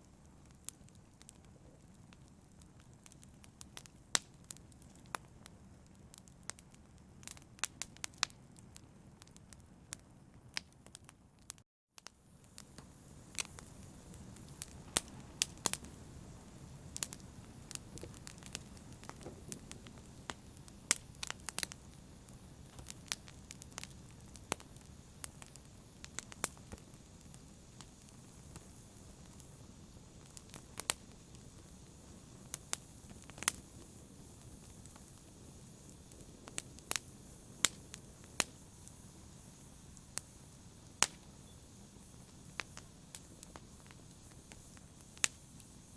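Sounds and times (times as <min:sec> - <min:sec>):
low rumble of flames: 0:00.0 - 0:45.9
wood fire crackling and popping: 0:00.0 - 0:45.9.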